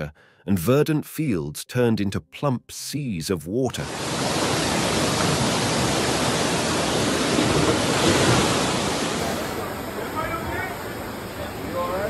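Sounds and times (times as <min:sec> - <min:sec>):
floodwater rushing: 0:03.8 - 0:12.0.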